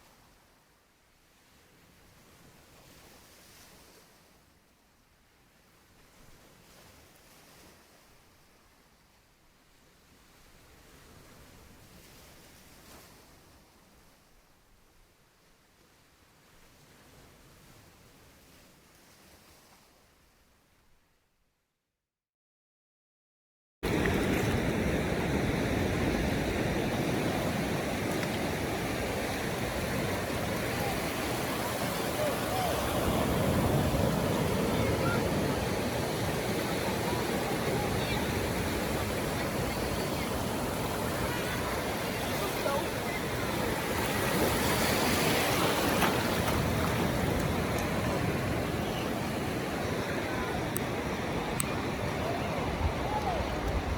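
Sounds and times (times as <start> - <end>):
wind: 0.0 - 21.9, 23.8 - 53.9
ocean surf washing onto beach: 23.8 - 53.9.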